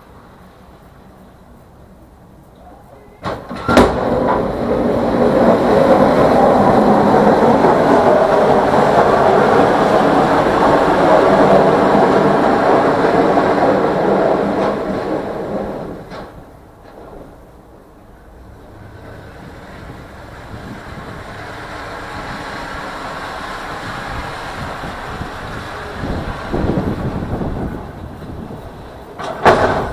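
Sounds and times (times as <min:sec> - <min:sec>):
loud mechanical rumble: 0:00.0 - 0:29.9
sharp knocks: 0:29.2 - 0:29.9.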